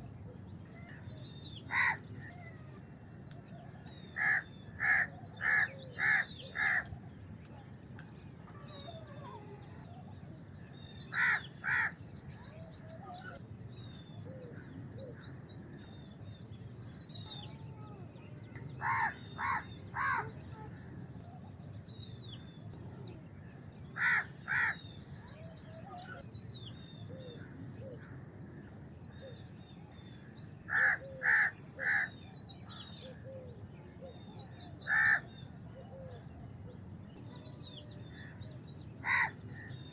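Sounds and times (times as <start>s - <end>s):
small birds chirping: 0.0s - 39.9s
crows cawing: 1.7s - 2.0s, 4.2s - 6.9s, 11.1s - 12.0s, 18.8s - 20.3s, 24.0s - 24.8s, 30.7s - 32.2s, 34.8s - 35.2s, 39.0s - 39.4s.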